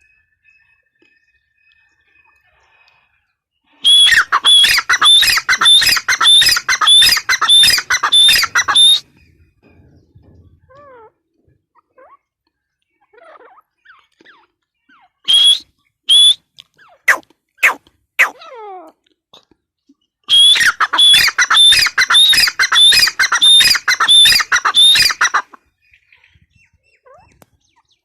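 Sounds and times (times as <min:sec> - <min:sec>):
faint bird chirps: 0:00.0 - 0:18.3
francolin calling shrill notes: 0:03.8 - 0:09.1, 0:20.3 - 0:25.4.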